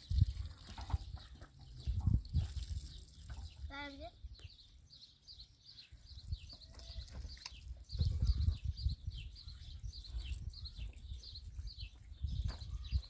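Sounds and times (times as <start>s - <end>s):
bird chirping: 0.1s - 13.0s
low rumbling thumps: 7.9s - 9.4s.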